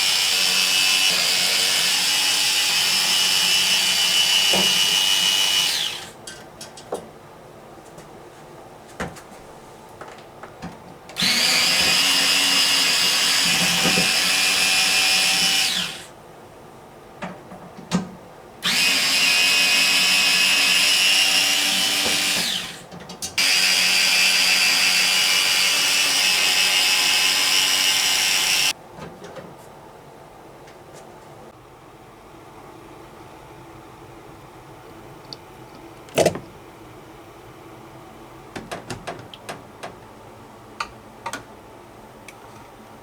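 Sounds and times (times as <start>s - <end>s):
electric screwdriver running: 11.2s - 16.1s, 18.6s - 22.8s, 23.4s - 28.7s.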